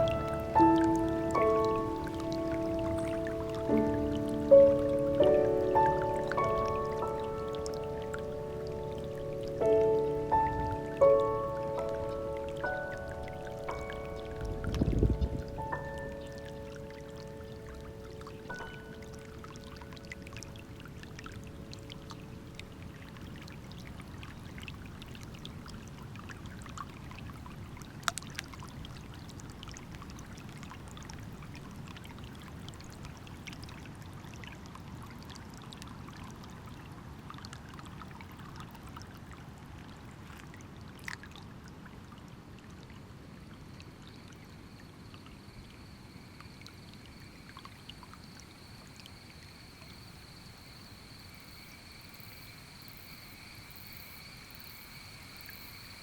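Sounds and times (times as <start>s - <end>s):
insect chirring: 0.0s - 23.9s, 43.6s - 56.0s
running water rushing: 0.0s - 33.5s.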